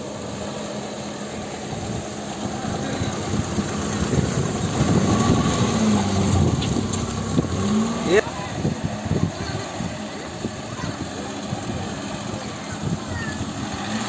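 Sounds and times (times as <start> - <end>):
car engine running: 0.0 - 14.0
tyre and road rumble: 0.0 - 14.0.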